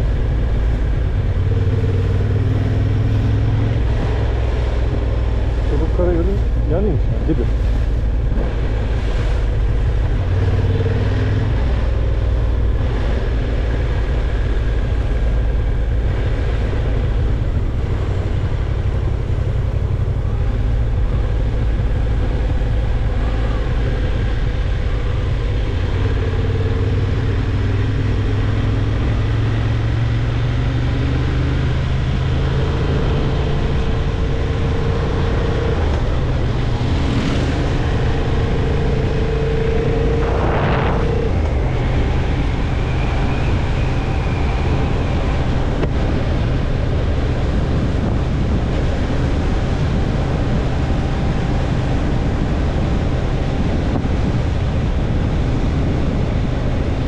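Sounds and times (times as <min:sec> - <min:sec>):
wind and road noise: 0:00.0 - 0:57.0
motorcycle engine running: 0:33.0 - 0:57.0.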